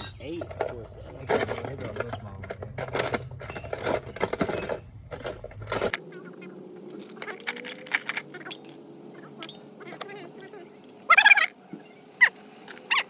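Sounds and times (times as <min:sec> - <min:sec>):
low background hum: 0:00.0 - 0:13.0
metal tools clinking: 0:00.0 - 0:13.0.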